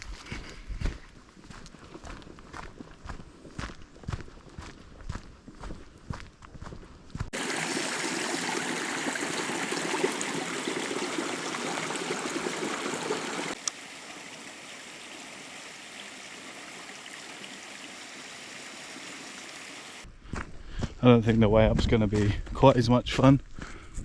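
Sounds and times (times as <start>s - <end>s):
rushing creek water: 7.3s - 20.0s.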